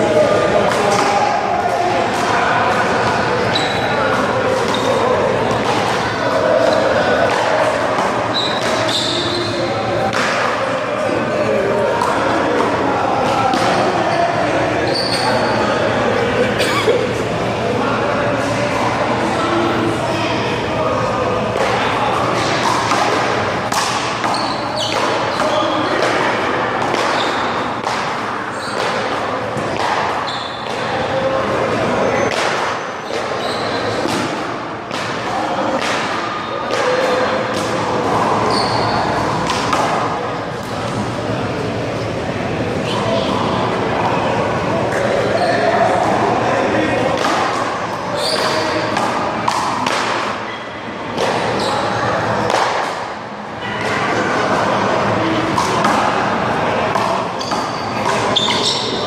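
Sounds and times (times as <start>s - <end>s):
background chatter: 0.0s - 59.0s
steady background noise: 0.0s - 59.0s.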